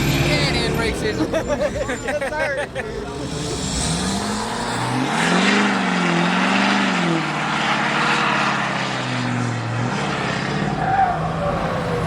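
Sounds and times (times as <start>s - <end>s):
steady rushing noise: 2.6s - 6.1s
car engine revving: 2.8s - 12.0s.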